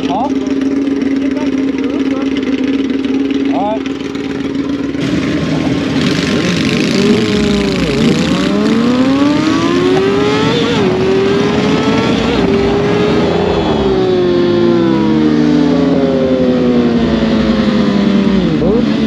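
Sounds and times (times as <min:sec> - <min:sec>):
motorcycle engine accelerating: 0:00.0 - 0:19.0
wind noise: 0:05.0 - 0:15.0.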